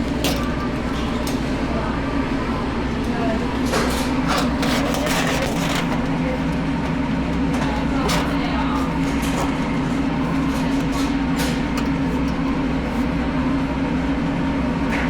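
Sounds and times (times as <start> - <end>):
loud mechanical hum: 0.0 - 15.0.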